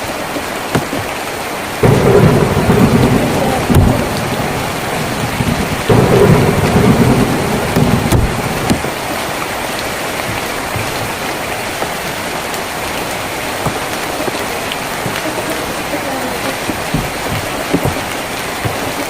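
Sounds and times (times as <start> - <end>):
rain on a tin roof: 0.0 - 19.0
sharp drips: 0.0 - 19.0
low thunder rumble: 1.8 - 11.3.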